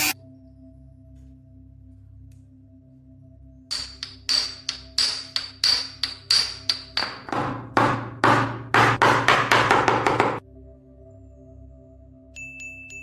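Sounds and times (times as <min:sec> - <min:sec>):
hammer striking metal: 0:03.7 - 0:10.4.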